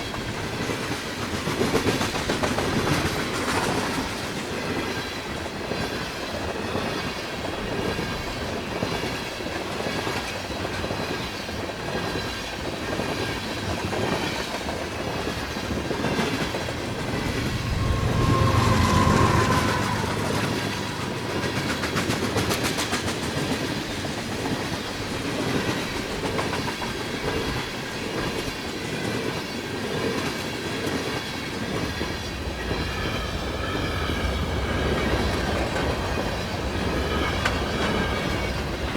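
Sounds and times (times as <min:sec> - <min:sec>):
freight train wheels clacking: 0:00.0 - 0:32.1
low rumble: 0:16.4 - 0:22.8.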